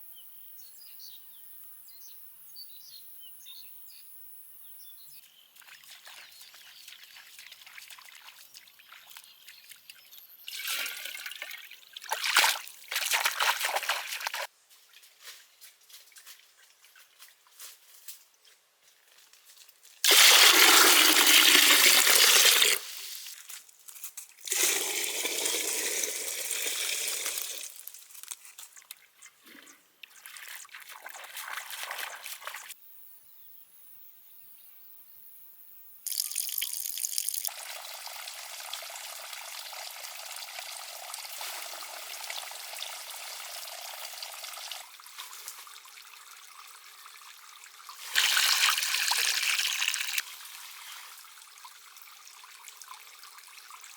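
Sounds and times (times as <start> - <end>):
water pouring and trickling: 5.6 - 14.5, 20.0 - 23.7, 24.4 - 32.8, 36.1 - 53.9.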